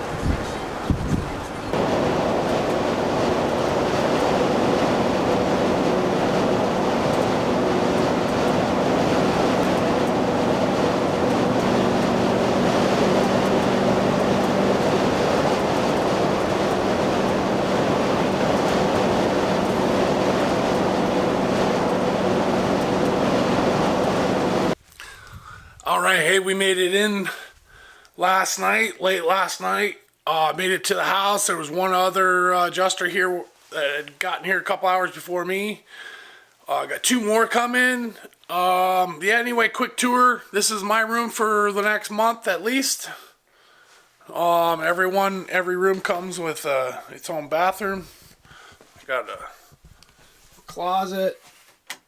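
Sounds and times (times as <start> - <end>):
road and engine noise in van: 0.0 - 24.8.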